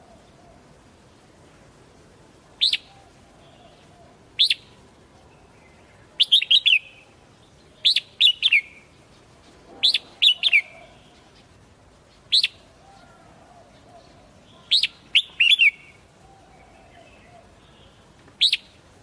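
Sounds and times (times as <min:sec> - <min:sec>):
bird singing whistled notes: 0:02.6 - 0:04.8, 0:05.4 - 0:09.0, 0:09.8 - 0:11.5, 0:12.1 - 0:13.2, 0:13.8 - 0:18.8.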